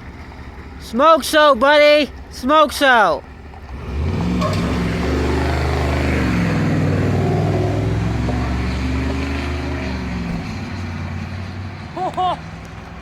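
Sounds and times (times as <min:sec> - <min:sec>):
truck engine droning: 0:00.0 - 0:13.0.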